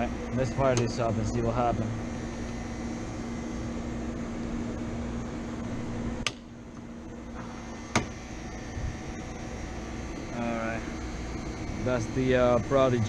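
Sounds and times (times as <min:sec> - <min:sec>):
hvac equipment hum: 0:00.0 - 0:13.0
sharp switch clicks: 0:06.2 - 0:06.8.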